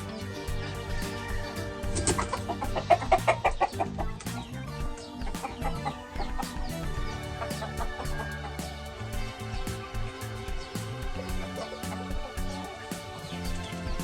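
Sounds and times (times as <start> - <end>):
background music: 0.0 - 14.0
chicken clucking: 0.7 - 8.8, 11.2 - 14.0.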